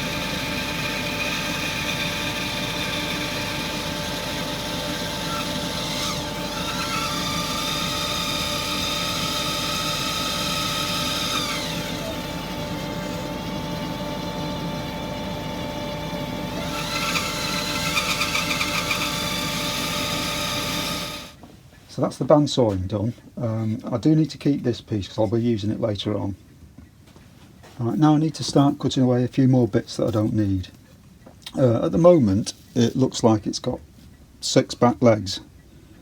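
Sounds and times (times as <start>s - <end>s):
bandsaw cutting wood: 0.0s - 21.4s.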